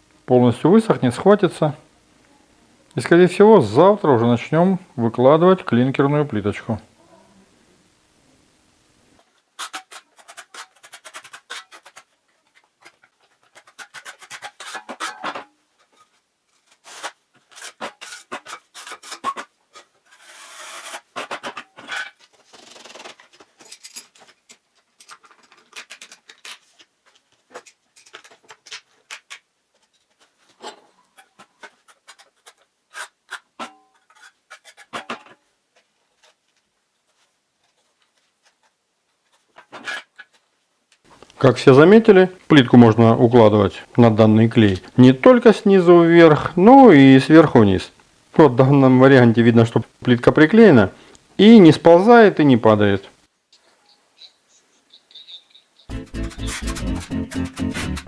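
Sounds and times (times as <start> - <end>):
trowel scraping tile adhesive: 9.6 - 12.2, 13.0 - 15.4, 16.7 - 19.5, 30.6 - 35.1, 55.9 - 58.0.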